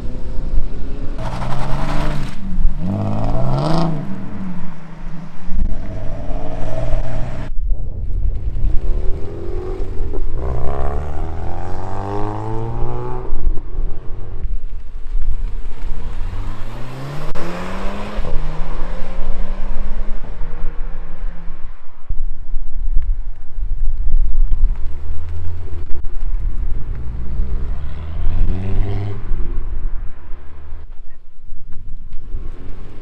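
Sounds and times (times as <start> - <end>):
car engines revving and accelerating: 0.0 - 7.6, 8.5 - 22.0, 24.8 - 31.0, 31.9 - 33.0
heavy low rumble: 0.0 - 16.5.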